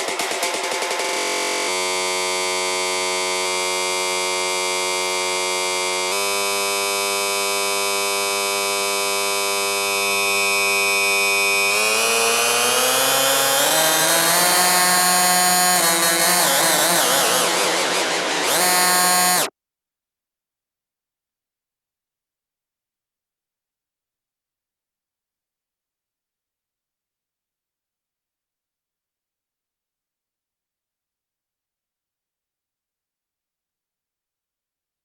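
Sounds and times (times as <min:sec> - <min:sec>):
buzzy electronic tone: 0:13.6 - 0:19.5.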